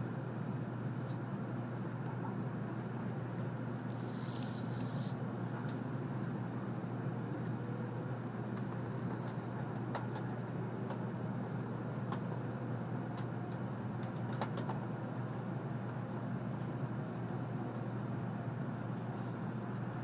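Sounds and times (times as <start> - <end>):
train cabin low rumble: 0.0 - 20.0.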